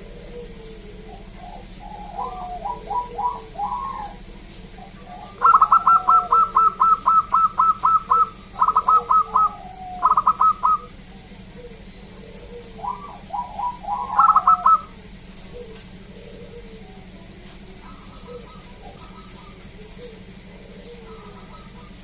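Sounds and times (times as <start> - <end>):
dove cooing: 0.0 - 22.0
steady low hum: 0.0 - 22.0.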